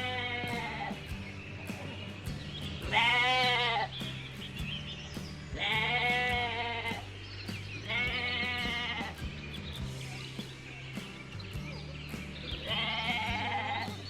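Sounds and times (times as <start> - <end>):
sheep bleating: 0.0 - 1.1, 2.8 - 3.9, 5.5 - 7.1, 7.8 - 9.2, 12.6 - 14.0
background music with ticking beat: 0.0 - 14.0.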